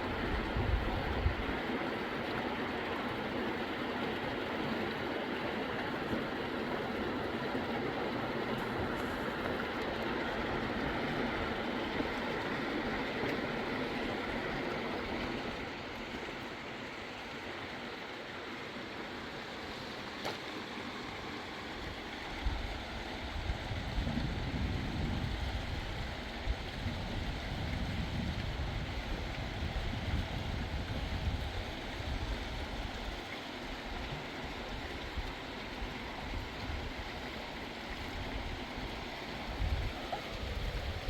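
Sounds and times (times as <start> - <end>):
fast river rushing: 0.0 - 23.7.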